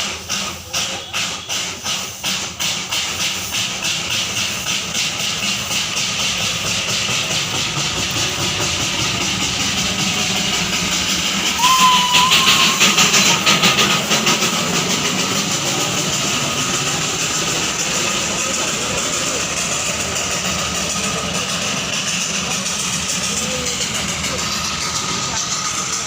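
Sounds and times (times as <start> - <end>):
steam locomotive chuffing: 0.0 - 26.0
steam train whistle: 11.4 - 14.2.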